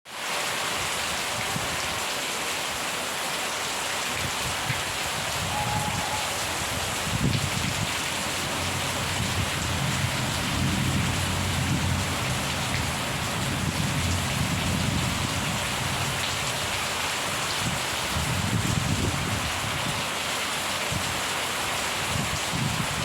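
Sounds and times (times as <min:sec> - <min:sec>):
heavy rain pattering: 0:00.1 - 0:23.0
distant thunder rumble: 0:05.4 - 0:16.2.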